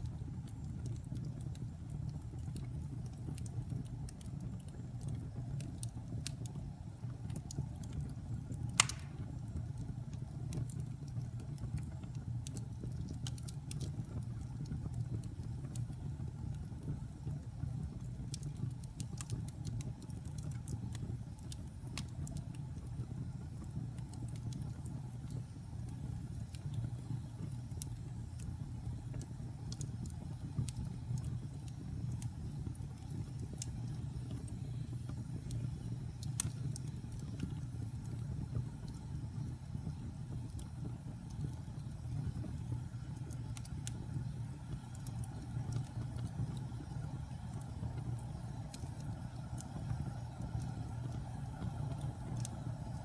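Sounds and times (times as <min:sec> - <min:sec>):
fire flames rumbling: 0:00.0 - 0:53.0
wood fire crackles: 0:00.0 - 0:53.0
loud wood pop: 0:08.8 - 0:09.2.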